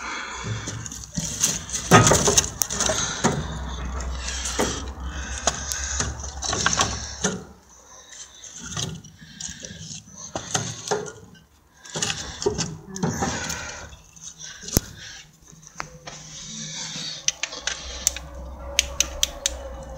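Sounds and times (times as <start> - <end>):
objects knocking and clicking: 0.5 - 7.5.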